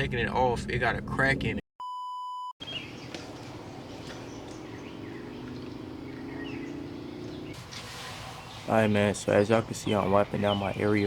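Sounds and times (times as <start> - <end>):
censor bleep: 1.8 - 2.6
bird chirps: 2.6 - 9.0.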